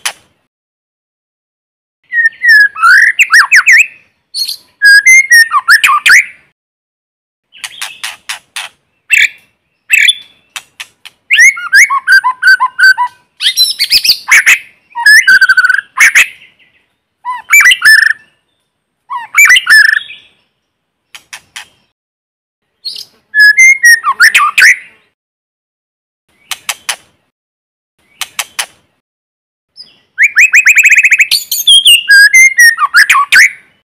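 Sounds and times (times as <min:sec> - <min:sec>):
bird singing clicks and whistles: 0:00.0 - 0:00.3, 0:07.6 - 0:16.4, 0:21.1 - 0:21.9, 0:26.3 - 0:27.2, 0:28.0 - 0:28.9, 0:29.8 - 0:33.6.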